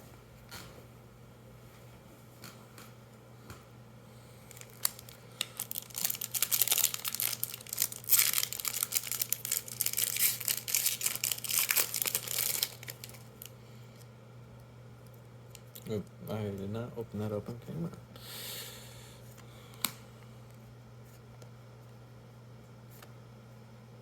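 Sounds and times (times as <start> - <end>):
wrapper being torn and crinkled: 4.5 - 13.5.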